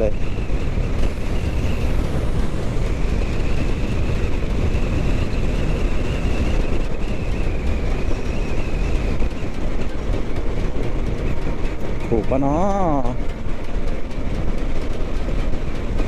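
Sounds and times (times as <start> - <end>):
motorcycle engine cruising: 0.0 - 12.2
wind rush on microphone: 0.0 - 12.2.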